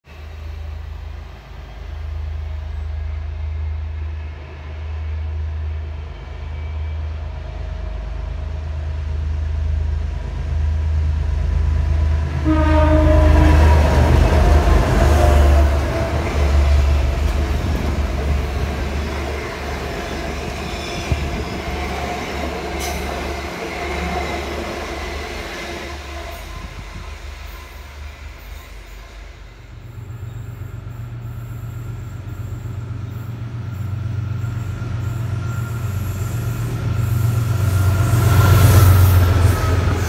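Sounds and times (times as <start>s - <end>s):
passenger train rumbling past: 0.0s - 40.0s
train horn blast: 12.4s - 16.9s.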